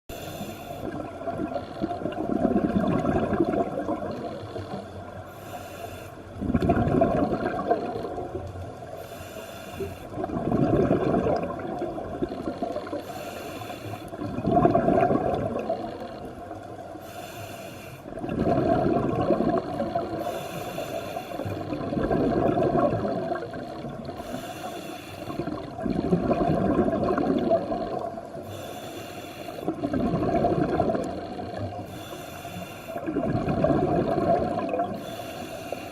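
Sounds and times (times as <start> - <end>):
regulator hiss on inhale: 0.1 - 1.8, 4.2 - 6.4, 8.9 - 10.2, 12.9 - 14.2, 16.0 - 18.2, 20.0 - 21.7, 24.1 - 25.7, 28.3 - 29.9, 31.4 - 33.2, 34.8 - 35.9
rush of bubbles: 0.8 - 4.3, 6.4 - 8.5, 10.1 - 13.0, 14.1 - 16.0, 18.1 - 20.2, 21.4 - 24.2, 25.3 - 28.2, 29.7 - 31.9, 33.0 - 35.1.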